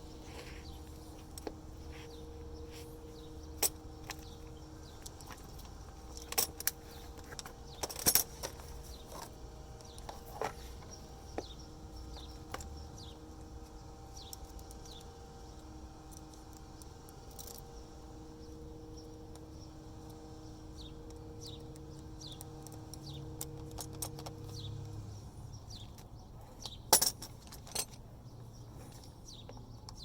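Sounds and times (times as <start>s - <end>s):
metal tools clinking and rattling: 0.0s - 12.7s, 22.6s - 24.6s, 26.6s - 28.0s
steady low hum: 0.0s - 30.0s.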